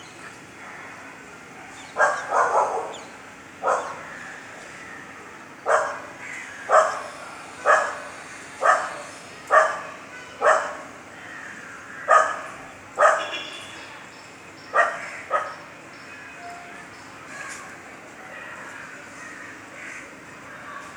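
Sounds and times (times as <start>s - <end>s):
low steady background noise: 0.0s - 20.9s
dog barking: 2.0s - 3.0s, 3.6s - 4.1s, 5.7s - 6.1s, 6.7s - 10.9s, 12.1s - 13.4s, 14.7s - 15.6s.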